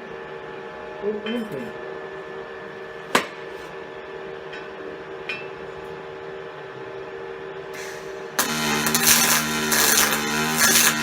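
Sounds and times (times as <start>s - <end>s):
steady machine hum: 6.0s - 11.0s.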